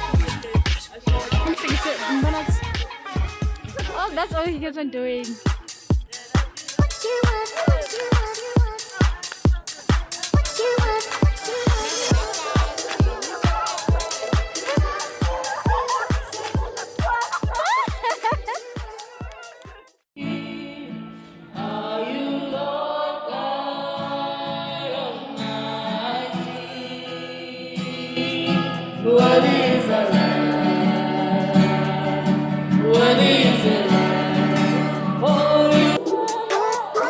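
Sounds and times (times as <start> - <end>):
choir singing gospel: 0.0 - 4.0, 5.7 - 37.0
dance beat: 0.0 - 20.0, 35.9 - 37.0.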